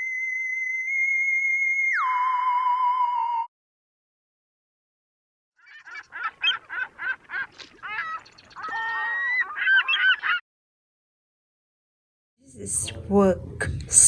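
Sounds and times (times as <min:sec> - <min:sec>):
geese honking: 0:05.6 - 0:10.4.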